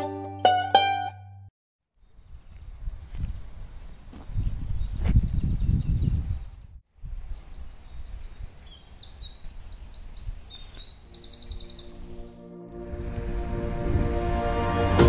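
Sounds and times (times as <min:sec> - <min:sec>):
songbirds singing: 0:02.0 - 0:12.3
low rumble: 0:12.7 - 0:15.0.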